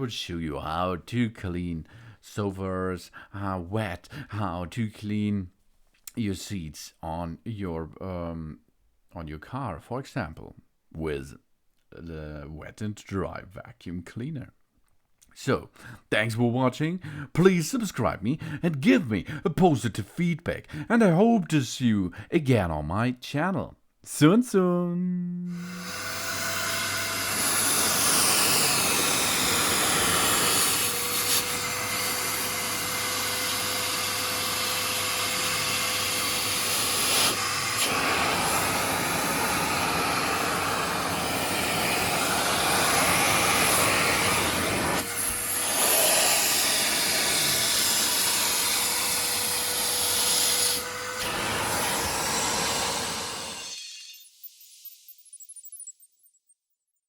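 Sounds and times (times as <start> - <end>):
shop vacuum running: 25.5 - 54.3.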